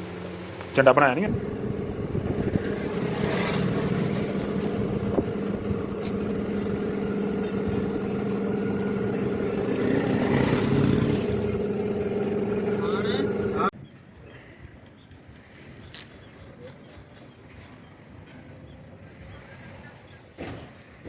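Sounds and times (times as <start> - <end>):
engine running steadily: 0.0 - 13.7.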